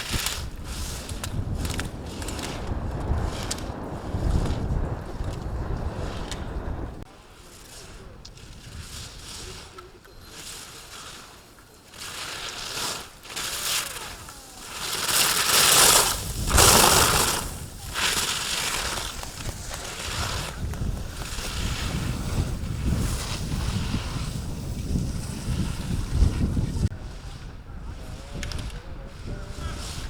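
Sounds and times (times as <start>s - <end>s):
wind buffeting microphone: 0.0s - 7.1s, 13.6s - 30.0s
skis scraping on hard snow: 0.0s - 30.0s.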